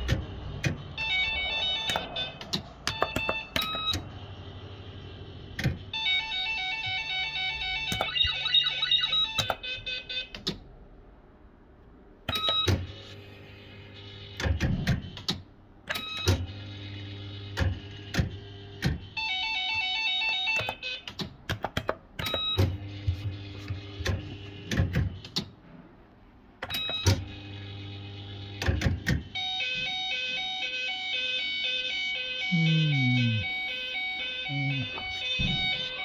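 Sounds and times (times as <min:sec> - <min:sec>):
steady low hum: 0:00.0 - 0:07.9
beeping electronic tune: 0:01.0 - 0:04.1, 0:32.4 - 0:36.0.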